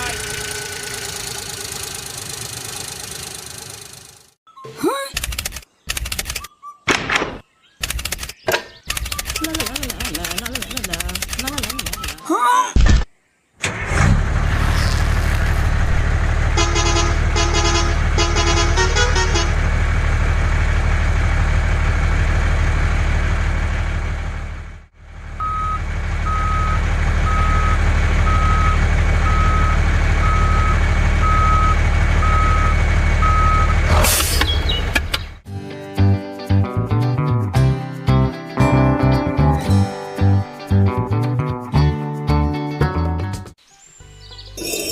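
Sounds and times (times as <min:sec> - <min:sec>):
truck engine running: 0:00.0 - 0:04.4, 0:13.8 - 0:35.5
truck horn toots: 0:16.4 - 0:19.7
reversing beeper: 0:25.4 - 0:33.9.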